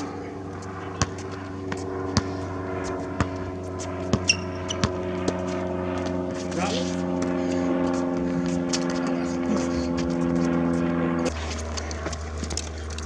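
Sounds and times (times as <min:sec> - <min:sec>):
engine-like hum: 0:00.0 - 0:13.0
basketball bouncing: 0:00.6 - 0:07.3
high shoe squeak: 0:04.1 - 0:05.6.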